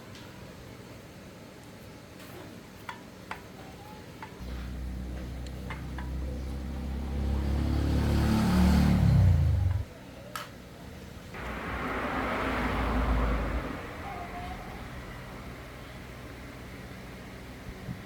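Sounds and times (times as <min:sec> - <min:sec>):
engine starting and running: 0:04.4 - 0:09.9, 0:11.4 - 0:16.7.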